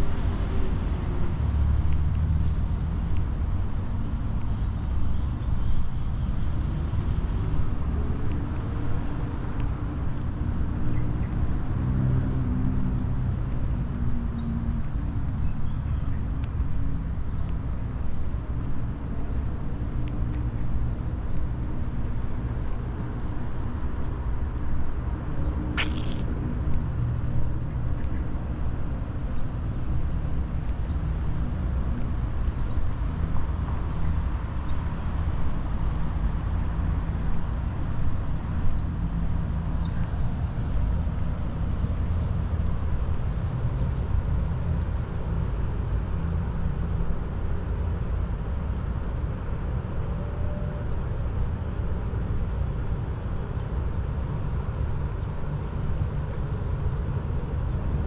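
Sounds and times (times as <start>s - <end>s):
sharp click: 25.8s - 26.3s.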